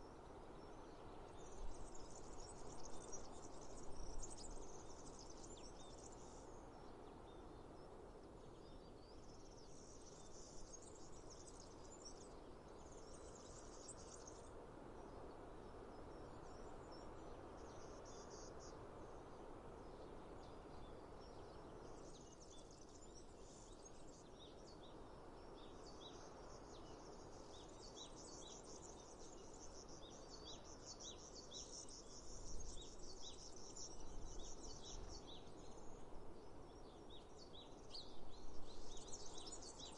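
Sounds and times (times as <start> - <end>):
bird chirping: 36.8 - 39.9.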